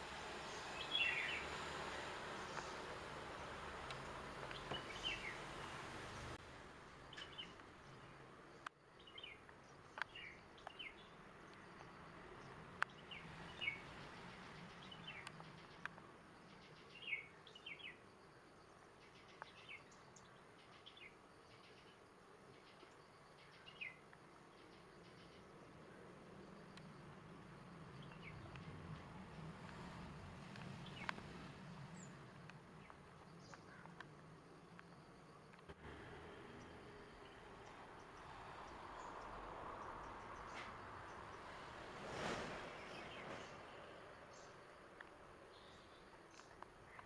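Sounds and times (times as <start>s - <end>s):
small birds chirping: 0.0s - 6.4s, 7.0s - 35.8s.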